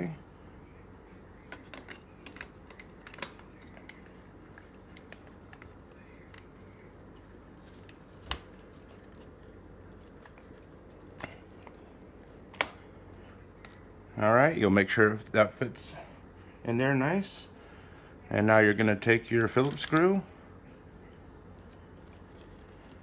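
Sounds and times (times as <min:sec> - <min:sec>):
plastic parts clicking: 0:19.5 - 0:20.1.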